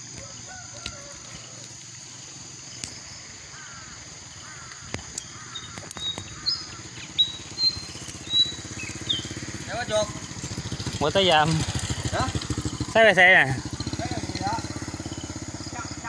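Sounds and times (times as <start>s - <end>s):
birds chirping: 0.0s - 16.0s
sharp clicks: 4.7s - 9.0s.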